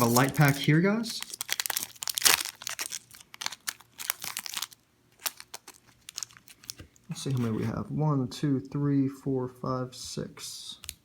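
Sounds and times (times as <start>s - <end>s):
foil wrappers crinkling: 0.0s - 7.1s.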